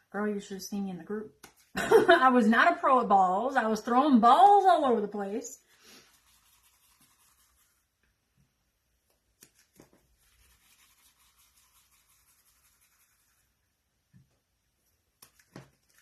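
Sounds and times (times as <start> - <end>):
faint rubbing: 5.6 - 7.9, 10.1 - 13.6.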